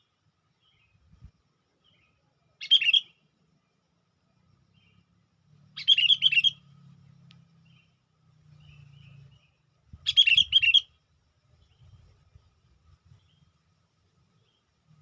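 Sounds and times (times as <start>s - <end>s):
bulbul calling: 1.9s - 3.3s, 5.7s - 11.0s.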